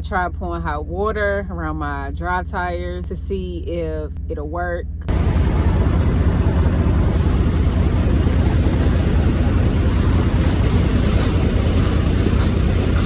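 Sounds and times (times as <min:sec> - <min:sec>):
diesel truck engine rumbling: 0:04.9 - 0:13.0.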